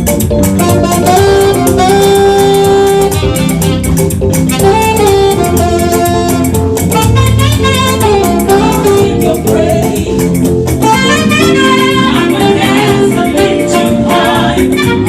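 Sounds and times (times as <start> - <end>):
live band playing gospel music: 0.0 - 15.0
percussion beat: 0.0 - 15.0
saxophone: 0.0 - 15.0.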